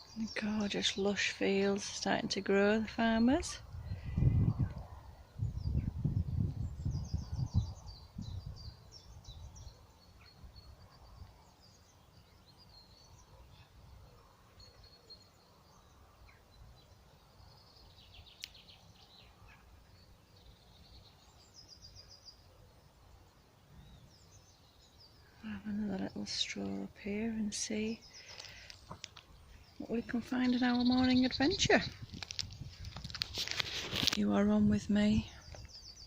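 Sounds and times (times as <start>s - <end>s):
small birds chirping: 0.0s - 36.0s
low rumbling on microphone: 3.6s - 9.7s.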